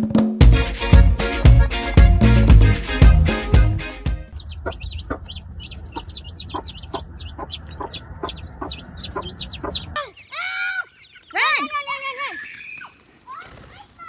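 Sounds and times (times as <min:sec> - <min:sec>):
drum music: 0:00.0 - 0:04.3
birds chirping: 0:03.3 - 0:14.0
lower short bird calls: 0:04.3 - 0:11.7.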